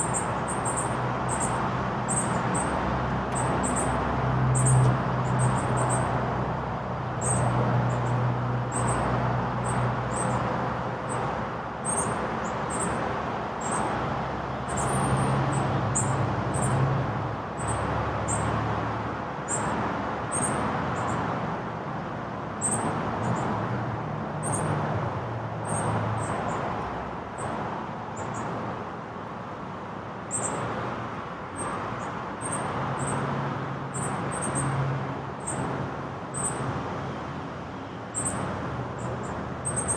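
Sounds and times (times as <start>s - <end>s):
high-pitched bird chirps: 0.0s - 2.8s
road traffic hum: 0.0s - 39.9s.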